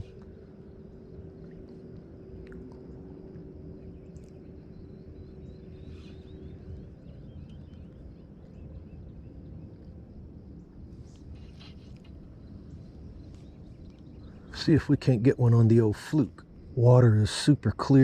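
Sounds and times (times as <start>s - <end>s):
low steady rumbling: 0.0s - 18.0s
faint bird chirps: 3.7s - 9.9s, 10.9s - 15.1s.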